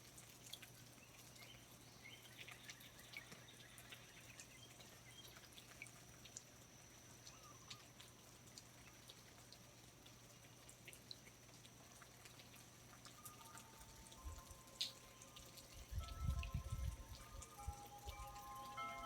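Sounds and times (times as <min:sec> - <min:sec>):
low hiss: 0:00.0 - 0:19.0
water drops dripping: 0:00.0 - 0:19.0.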